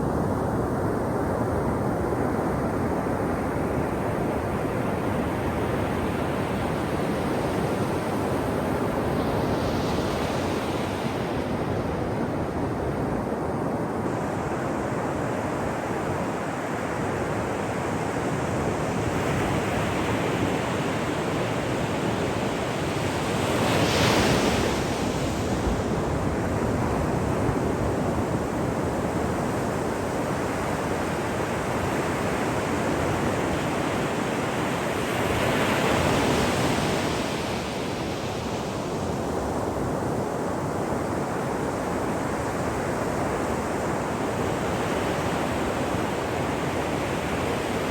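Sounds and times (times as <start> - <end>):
ocean surf on shore: 14.1 - 47.9.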